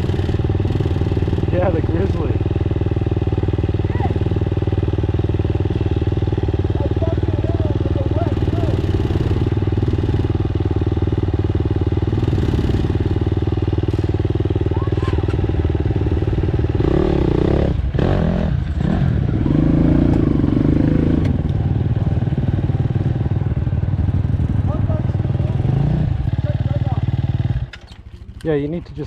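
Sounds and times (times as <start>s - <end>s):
dirt bike engine revving: 0.0s - 27.7s.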